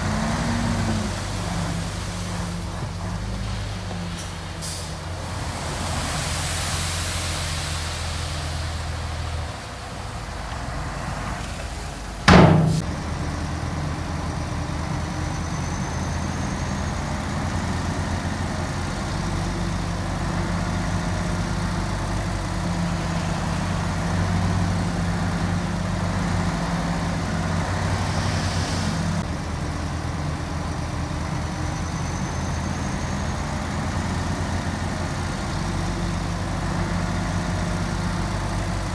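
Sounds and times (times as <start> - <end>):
diesel engines running: 0.0 - 38.9
hiss: 3.5 - 9.8
sharp loud bang: 12.3 - 12.9.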